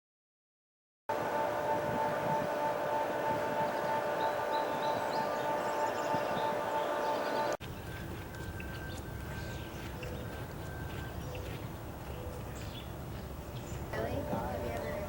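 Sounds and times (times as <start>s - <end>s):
intro music: 1.1s - 12.1s
thin steady tone: 1.1s - 12.1s
steady low rumble: 1.1s - 15.0s.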